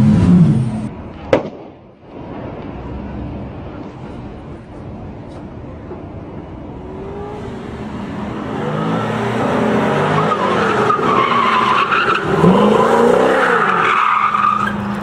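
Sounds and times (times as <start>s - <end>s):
car engine revving: 6.8s - 15.0s.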